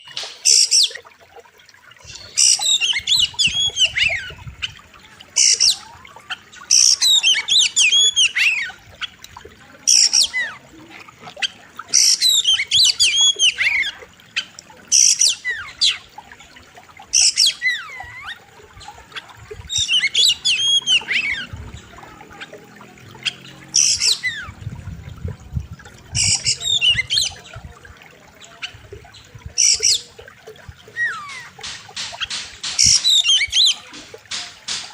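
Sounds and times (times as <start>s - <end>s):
bird singing whistles and warbles: 2.0s - 9.3s, 11.4s - 16.3s, 17.1s - 25.4s, 26.1s - 27.7s, 28.4s - 34.0s.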